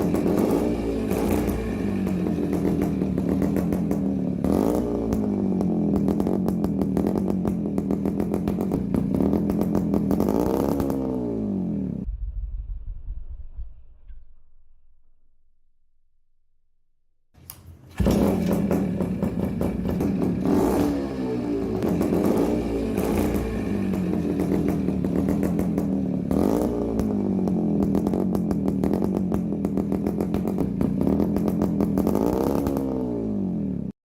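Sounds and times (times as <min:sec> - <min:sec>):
motorcycle engine idling: 0:00.0 - 0:12.0, 0:18.0 - 0:33.9
engine throttle blips: 0:00.0 - 0:14.1, 0:17.4 - 0:33.9.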